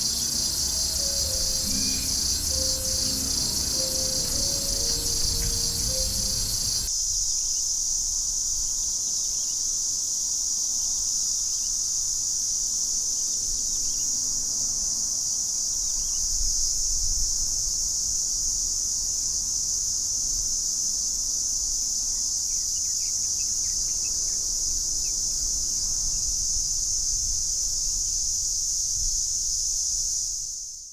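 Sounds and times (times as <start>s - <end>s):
cicada buzzing: 0.0s - 6.9s.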